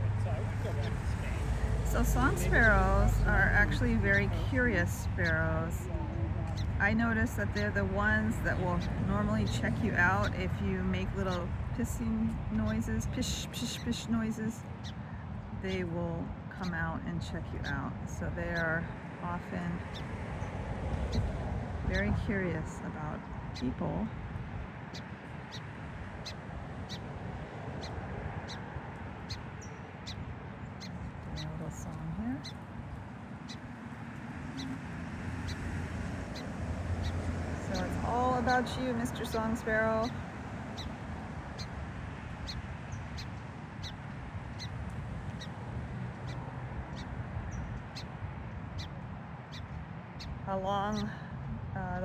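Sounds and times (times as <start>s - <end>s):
low steady rumble: 0.0s - 24.8s
sparrow chip calls: 0.5s - 52.0s
sparrow sharp call notes: 36.3s - 41.0s.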